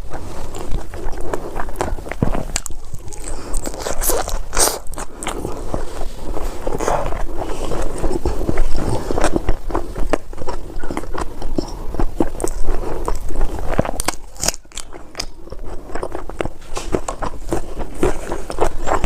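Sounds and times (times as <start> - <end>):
crunchy chewing: 0.0 - 19.0
wet mouth sounds: 0.0 - 19.0.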